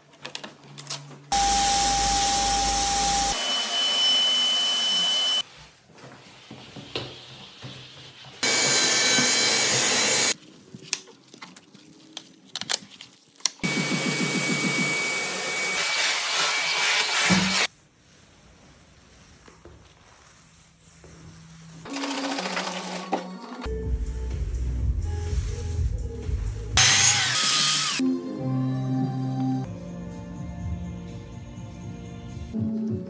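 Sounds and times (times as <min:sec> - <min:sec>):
floor sanding machine whine: 0:01.3 - 0:05.4, 0:08.4 - 0:10.4, 0:13.6 - 0:17.7.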